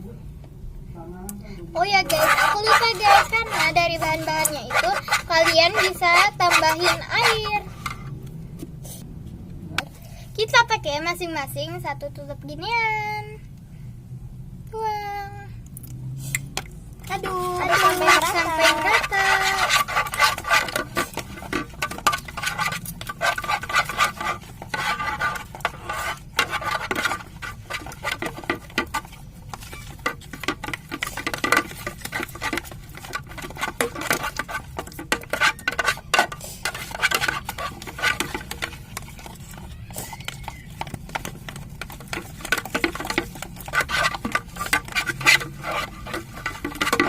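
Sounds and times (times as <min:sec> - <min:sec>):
spoon stirring sticky slime: 0:01.8 - 0:08.0, 0:17.1 - 0:47.0.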